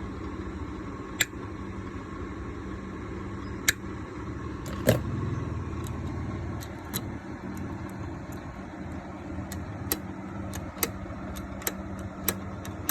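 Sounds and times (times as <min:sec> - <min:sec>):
sharp metallic clicks: 0:01.2 - 0:01.4, 0:03.6 - 0:03.9, 0:04.6 - 0:05.1, 0:05.8 - 0:12.9.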